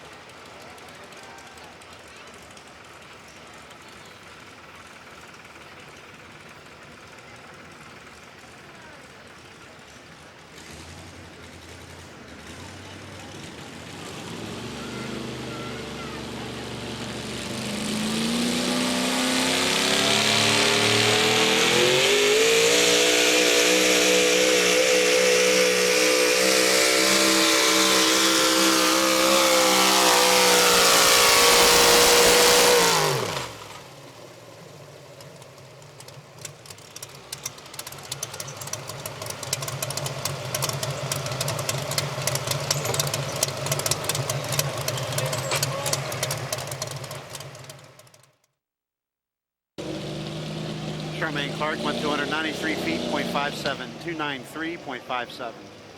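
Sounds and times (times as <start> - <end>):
low engine with fast rattling clicks: 0.0 - 17.7, 28.5 - 48.5
truck engine screaming at full throttle: 10.4 - 34.5, 36.0 - 48.1, 49.8 - 55.9.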